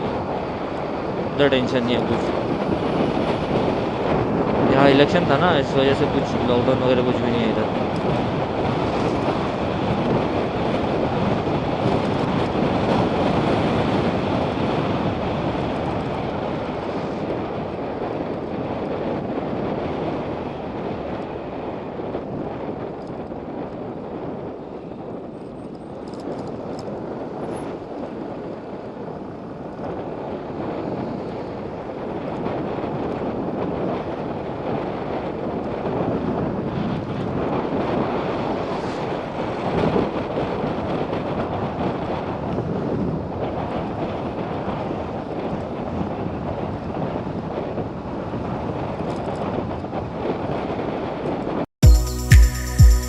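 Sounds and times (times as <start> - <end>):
road noise: 0.0 - 32.6, 36.8 - 40.9
wind rushing over microphone: 0.0 - 51.7.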